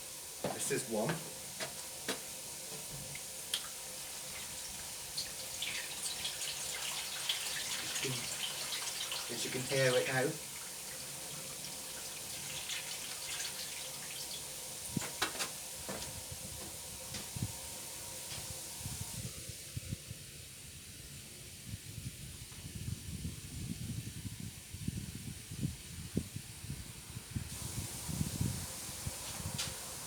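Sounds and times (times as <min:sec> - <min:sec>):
water running: 0:00.0 - 0:19.3, 0:27.5 - 0:30.0.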